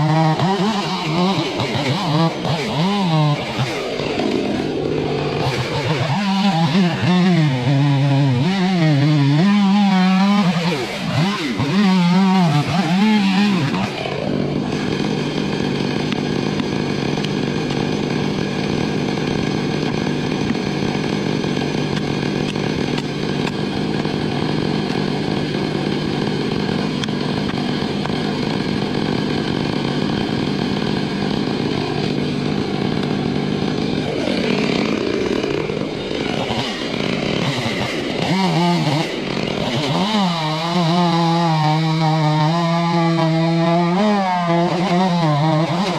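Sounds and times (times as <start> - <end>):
chainsaw engine revving: 0.0 - 45.9.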